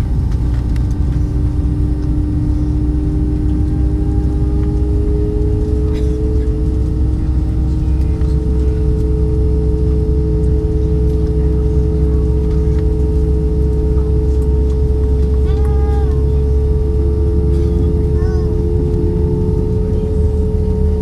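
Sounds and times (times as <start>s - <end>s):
jet engines humming: 0.0s - 21.0s
muffled voice: 5.6s - 21.0s.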